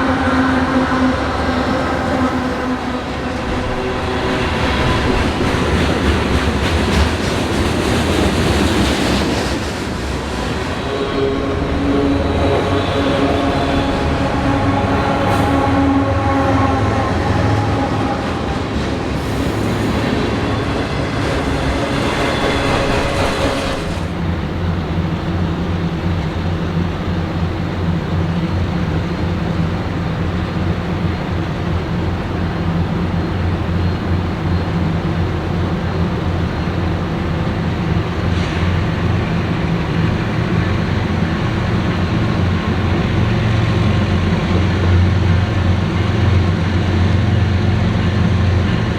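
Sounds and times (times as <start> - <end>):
low drone: 0.0 - 7.0, 10.0 - 30.3
train rolling on rails: 0.0 - 48.9.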